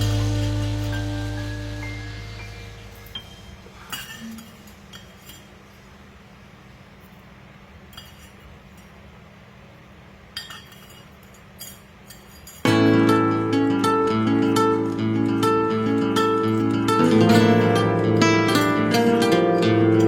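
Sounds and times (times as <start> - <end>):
background music: 0.0 - 3.8, 12.7 - 20.0
faint steady hum: 0.0 - 20.0.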